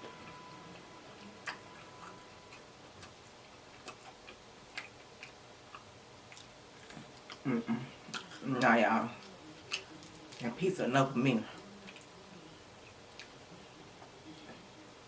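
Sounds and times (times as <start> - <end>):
mouth clicks and smacks chewing: 1.4 - 7.5.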